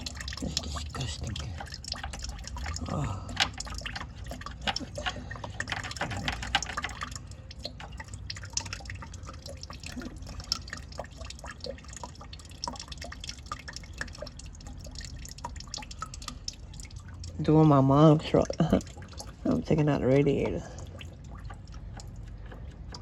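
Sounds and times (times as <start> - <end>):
coolant dripping and splashing: 0.0 - 23.0.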